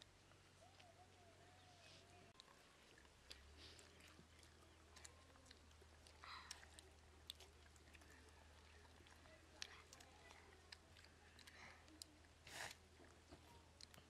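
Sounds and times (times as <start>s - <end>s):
children chewing food: 0.0s - 14.0s
low steady hum: 0.0s - 14.0s.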